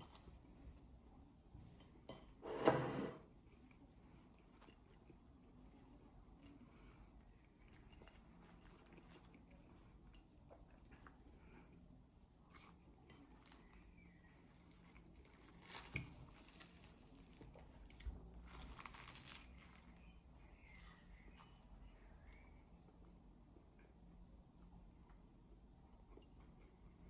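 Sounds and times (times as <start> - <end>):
crinkling: 7.5 - 11.6, 12.5 - 22.5.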